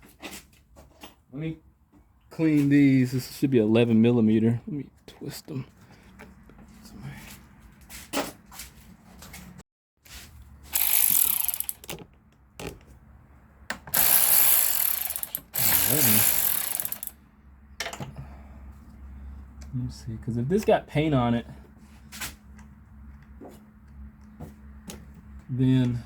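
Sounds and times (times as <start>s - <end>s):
ratchet wrench clicking: 10.7s - 12.0s, 14.0s - 17.2s.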